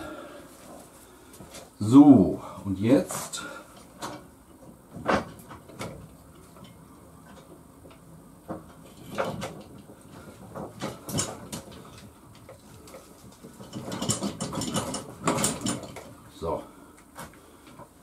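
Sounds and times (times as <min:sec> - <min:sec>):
hand tools clicking and knocking: 0:08.5 - 0:16.2.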